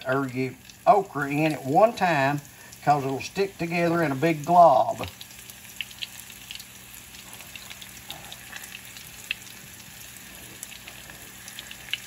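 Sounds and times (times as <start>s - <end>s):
oil crackling and popping: 0.0s - 12.0s
okra sizzling in hot oil: 0.0s - 12.0s.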